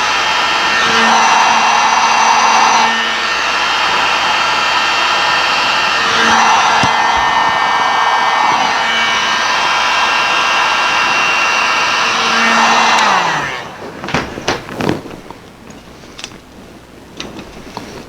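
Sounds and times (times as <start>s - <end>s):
electric blower whining: 0.0s - 18.0s
handling knocks and clicks: 13.8s - 18.0s.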